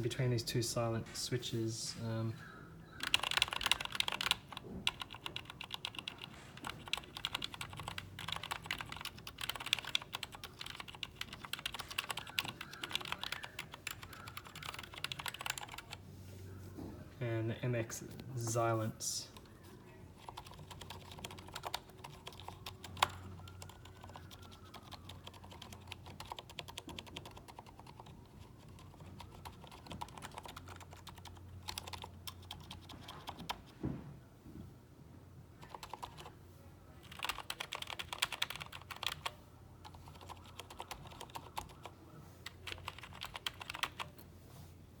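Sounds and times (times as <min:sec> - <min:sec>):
soft keyboard keystrokes: 0:03.0 - 0:16.0, 0:20.2 - 0:33.7, 0:35.6 - 0:36.3, 0:37.0 - 0:44.2.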